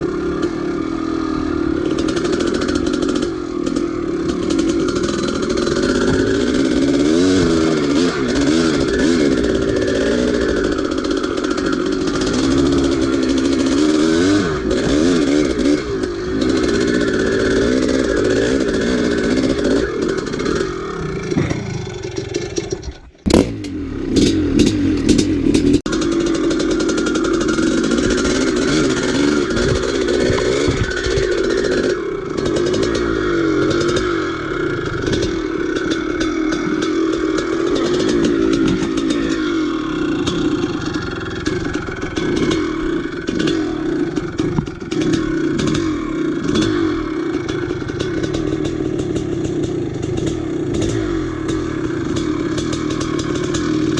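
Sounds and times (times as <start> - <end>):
motorcycle engine under load: 0.0 - 53.9.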